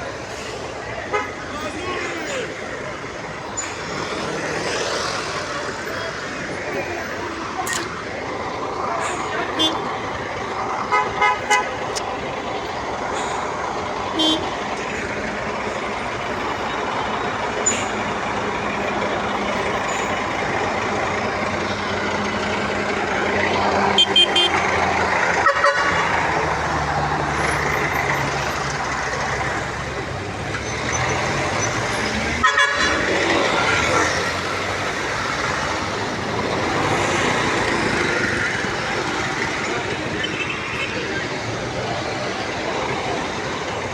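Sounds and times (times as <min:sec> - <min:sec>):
traffic passing: 0:00.0 - 0:43.9
car horn toots: 0:24.0 - 0:24.6, 0:32.4 - 0:33.0.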